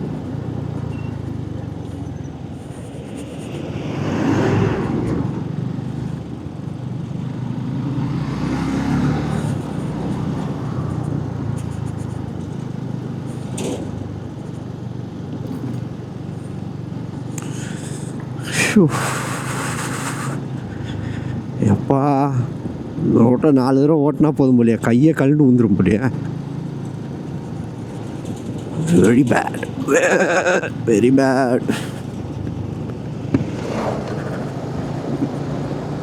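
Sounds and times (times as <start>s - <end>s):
motorcycle engine running: 0.0s - 4.0s, 4.7s - 23.2s.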